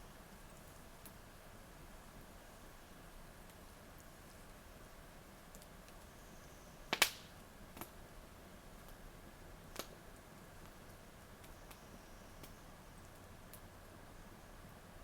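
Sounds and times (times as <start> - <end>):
campfire crackling and popping: 5.3 - 6.1, 6.9 - 8.1, 8.8 - 11.8, 12.4 - 13.8.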